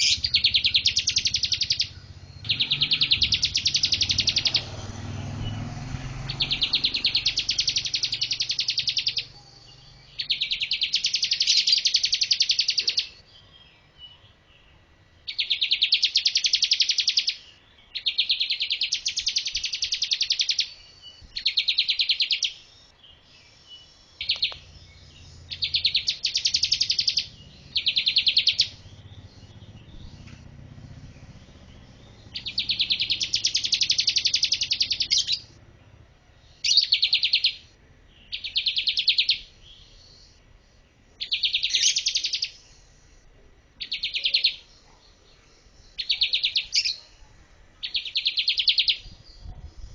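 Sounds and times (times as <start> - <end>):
bird singing repeated notes: 0.0 - 49.9.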